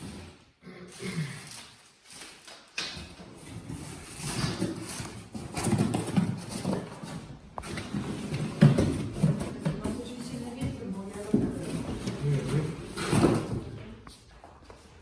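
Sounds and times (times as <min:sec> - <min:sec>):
footsteps on hard floor: 0:03.4 - 0:15.0.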